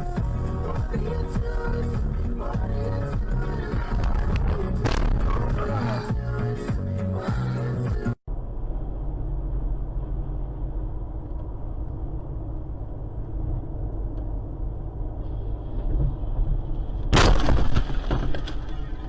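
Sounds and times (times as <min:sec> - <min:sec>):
car driving rumble: 0:00.0 - 0:19.0
vehicle collision crunching: 0:15.8 - 0:19.0.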